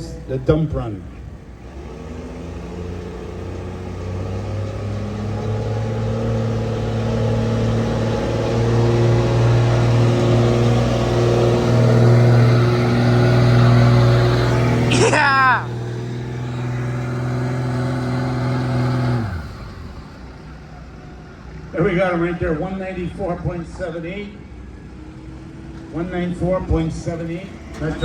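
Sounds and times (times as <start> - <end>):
pickup engine running under load: 0.0 - 28.0.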